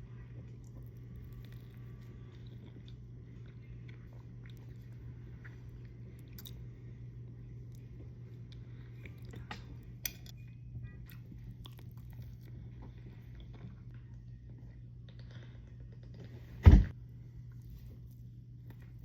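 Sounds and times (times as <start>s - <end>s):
steady low hum: 0.0s - 19.0s
person chewing: 0.4s - 10.0s, 11.1s - 13.9s.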